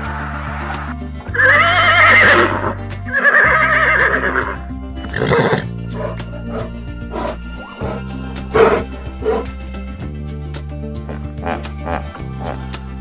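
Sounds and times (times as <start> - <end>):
background music: 0.0 - 13.0
horse whinnying: 1.3 - 9.5
horse breathy snort: 5.0 - 9.6, 11.1 - 12.7.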